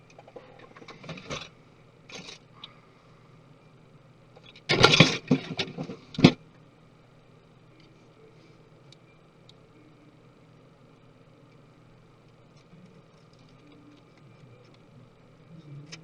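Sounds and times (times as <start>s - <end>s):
tools clattering: 4.7s - 6.4s.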